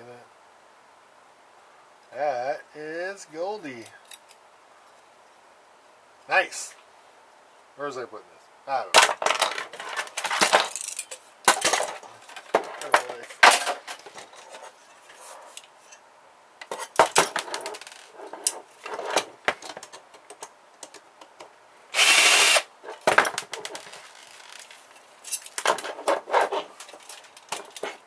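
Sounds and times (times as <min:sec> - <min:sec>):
plastic and metal parts clattering: 0:09.0 - 0:15.7, 0:16.6 - 0:21.0, 0:22.9 - 0:28.0
power driver running: 0:21.9 - 0:22.7.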